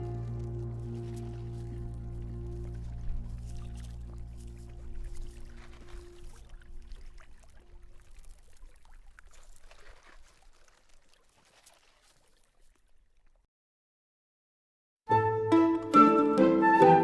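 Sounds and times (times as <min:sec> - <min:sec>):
small crackles: 0:00.0 - 0:13.5
soft water trickle: 0:00.0 - 0:13.5.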